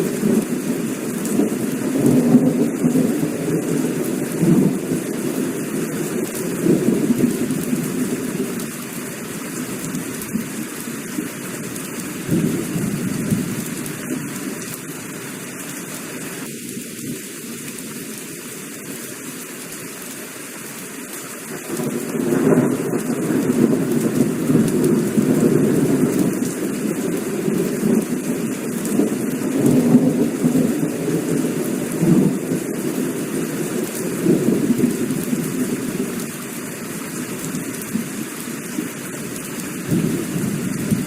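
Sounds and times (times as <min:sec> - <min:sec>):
heavy rain falling: 0:00.0 - 0:41.0
rolling thunder: 0:39.9 - 0:41.0.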